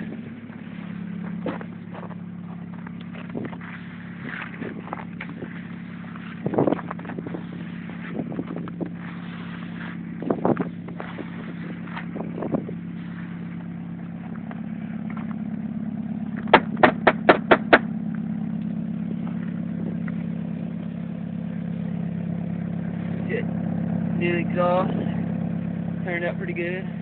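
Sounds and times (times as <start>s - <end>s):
car engine idling: 0.0s - 27.0s
sharp engine knocks: 1.2s - 5.7s, 16.2s - 21.0s.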